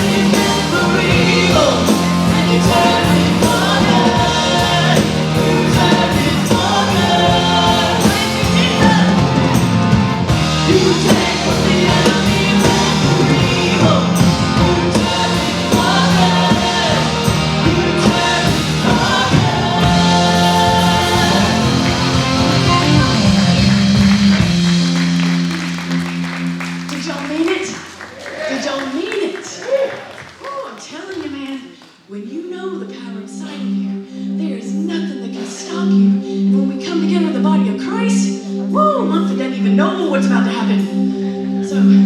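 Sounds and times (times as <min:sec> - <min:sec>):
person singing: 0:00.0 - 0:09.9, 0:10.5 - 0:24.4
worship band playing: 0:00.0 - 0:32.1, 0:32.8 - 0:42.0.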